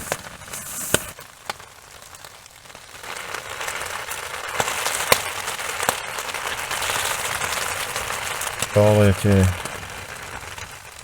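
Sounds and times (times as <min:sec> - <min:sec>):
heavy rain on a tarp: 0:00.0 - 0:11.0
drips tapping on a tarp: 0:03.0 - 0:11.0.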